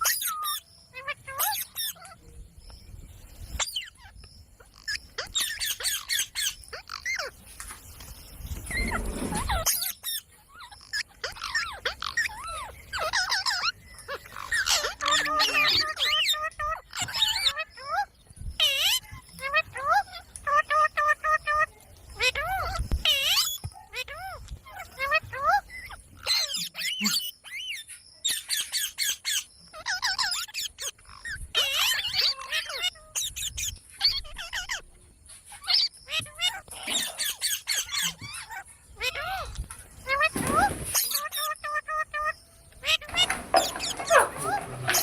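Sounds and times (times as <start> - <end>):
parrot squawking and chirping: 0.0 - 2.2, 3.5 - 7.4, 8.6 - 45.0.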